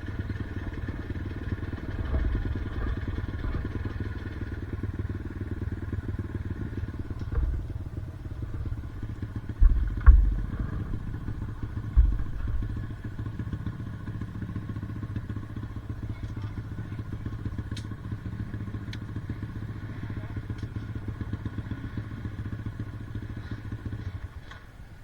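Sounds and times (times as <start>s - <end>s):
motorcycle engine running: 0.0s - 25.0s
loud thumps: 7.3s - 13.2s.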